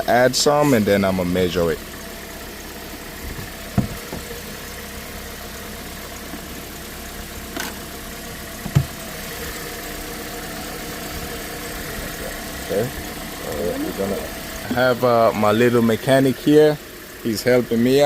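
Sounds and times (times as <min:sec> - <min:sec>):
car engine idling: 0:00.0 - 0:18.0
low thumps: 0:03.2 - 0:04.4, 0:08.6 - 0:09.0.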